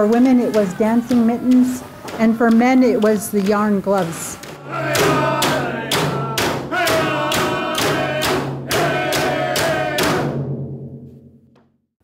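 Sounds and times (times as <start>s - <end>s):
voices singing: 0.0s - 10.3s
frame drum beating: 0.0s - 11.0s.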